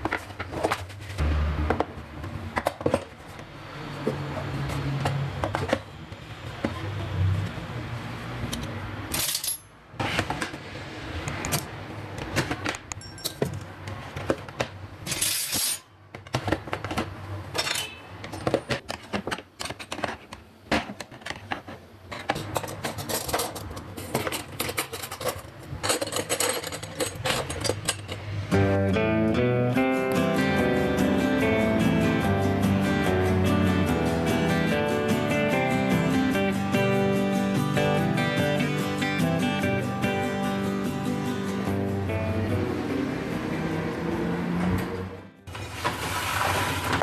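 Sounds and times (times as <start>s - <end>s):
cutlery clinking: 12.9s - 13.6s, 17.6s - 18.6s, 22.4s - 28.3s.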